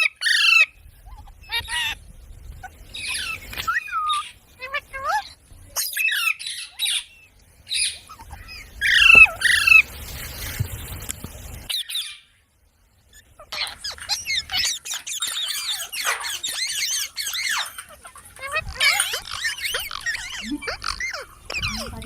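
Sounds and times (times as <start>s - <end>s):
parrot squawking and chirping: 0.0s - 2.0s, 2.6s - 9.9s, 11.6s - 12.3s, 13.1s - 22.0s.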